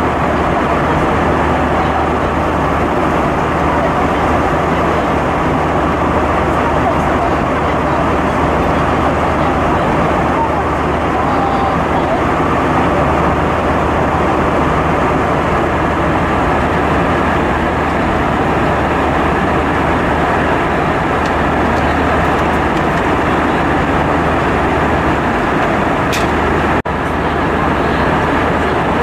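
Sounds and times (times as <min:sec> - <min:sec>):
airplane cabin engine and airflow noise: 0:00.0 - 0:29.0.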